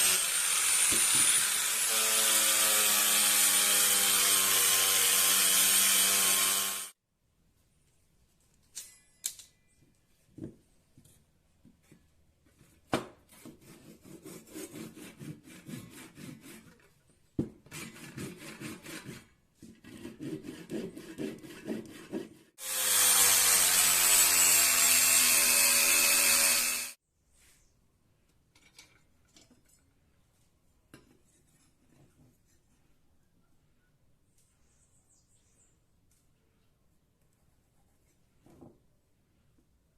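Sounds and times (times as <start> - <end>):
power tool running: 0.0 - 6.9, 22.6 - 27.0
hand sawing or rasping wood: 0.0 - 7.0, 13.3 - 17.0, 17.6 - 27.0.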